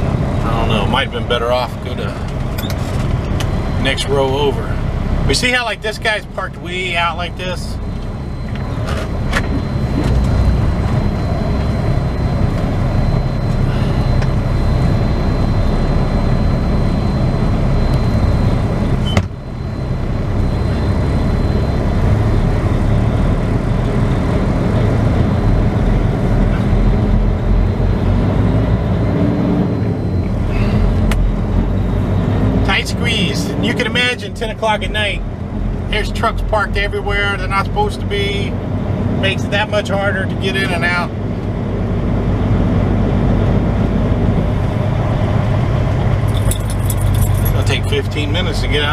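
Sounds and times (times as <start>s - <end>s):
diesel engine low rumble: 0.0s - 48.9s.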